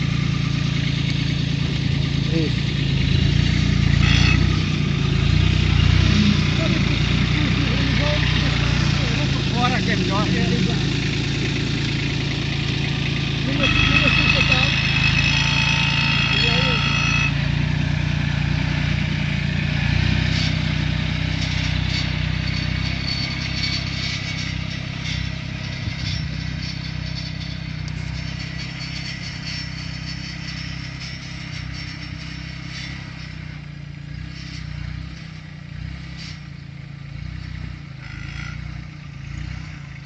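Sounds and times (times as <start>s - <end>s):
tractor diesel engine running: 0.0s - 40.0s
clattering and scraping: 20.2s - 33.6s.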